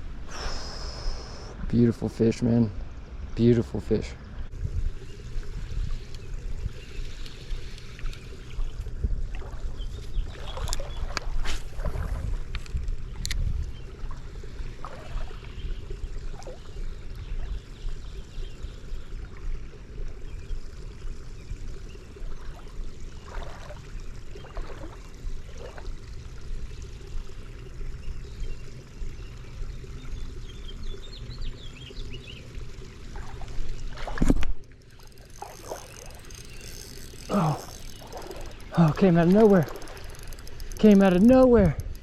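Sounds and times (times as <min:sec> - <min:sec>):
creek water trickling: 0:00.0 - 0:42.0
wind buffeting microphone: 0:04.5 - 0:06.9, 0:08.9 - 0:14.2.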